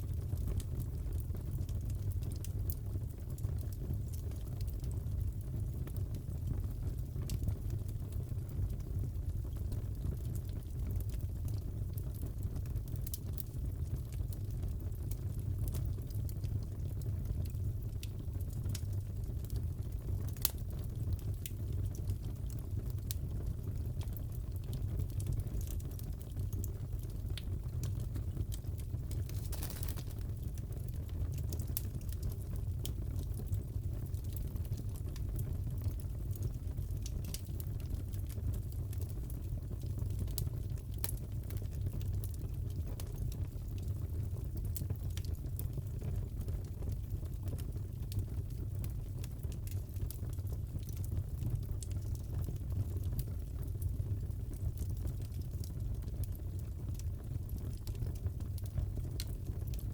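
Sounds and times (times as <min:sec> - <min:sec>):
fire crackling and popping: 0:00.0 - 0:59.9
sharp pops and snaps: 0:28.5 - 0:30.5.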